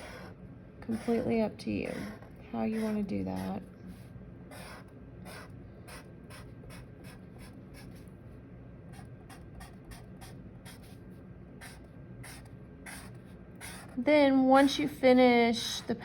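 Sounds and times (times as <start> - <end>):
pen scratching on paper: 0.0 - 0.3, 0.9 - 8.1, 8.9 - 11.0, 11.6 - 14.0.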